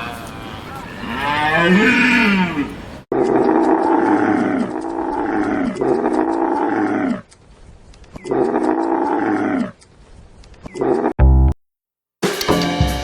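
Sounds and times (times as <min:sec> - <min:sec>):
big cat roaring: 0:00.4 - 0:07.3, 0:08.2 - 0:09.8.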